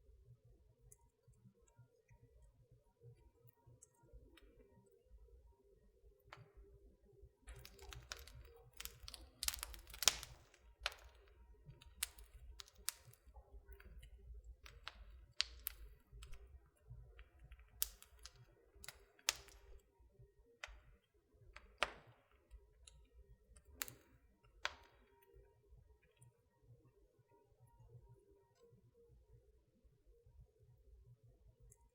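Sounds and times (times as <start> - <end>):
wood fire crackling and popping: 7.5 - 19.9, 20.6 - 25.1.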